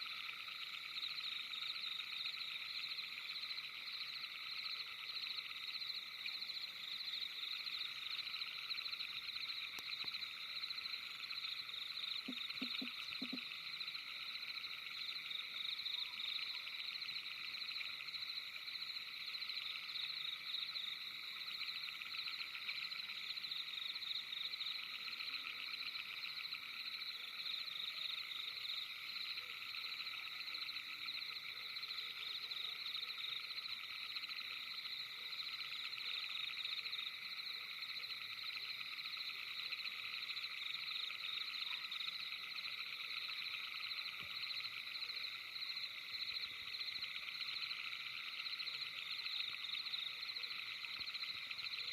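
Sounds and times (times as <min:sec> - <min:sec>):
frogs trilling: 0:00.0 - 0:51.9.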